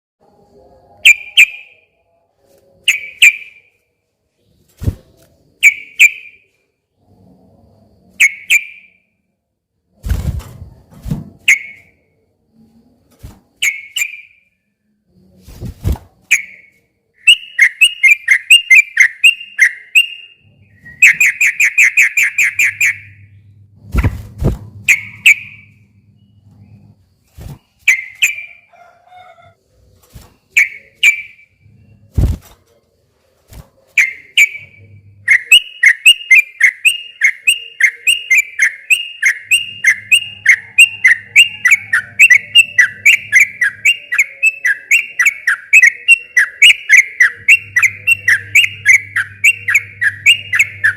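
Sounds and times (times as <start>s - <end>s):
bird singing bubbly notes: 34.0s - 50.9s.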